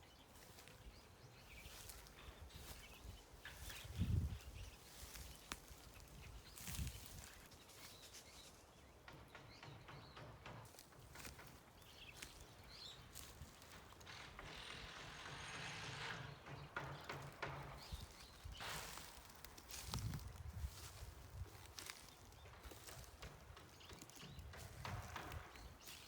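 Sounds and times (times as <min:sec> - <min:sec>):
faint bird chirps: 0:00.0 - 0:08.7.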